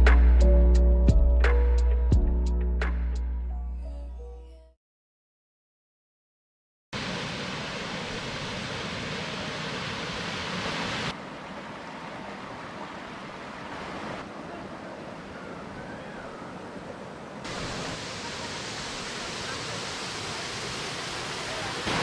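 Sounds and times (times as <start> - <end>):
waterfall rushing: 7.0 - 22.0.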